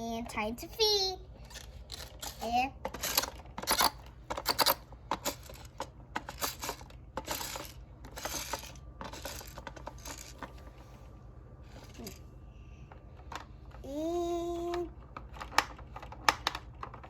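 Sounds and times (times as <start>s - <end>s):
plastic toy pieces clattering: 1.4s - 10.6s.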